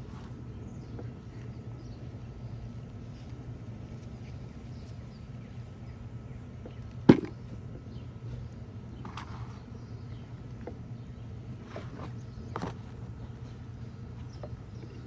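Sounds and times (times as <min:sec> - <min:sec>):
steady low hum: 0:00.0 - 0:15.0
knock against bucket: 0:07.1 - 0:07.4.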